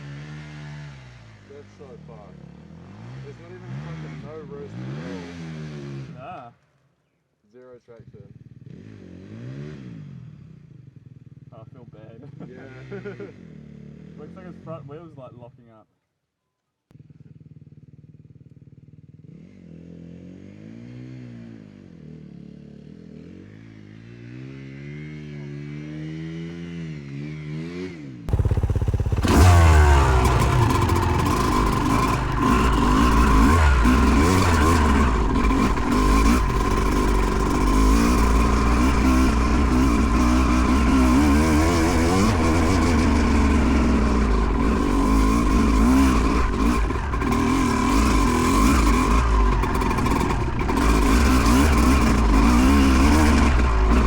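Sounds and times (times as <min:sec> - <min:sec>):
dirt bike engine revving: 0:28.3 - 0:54.0.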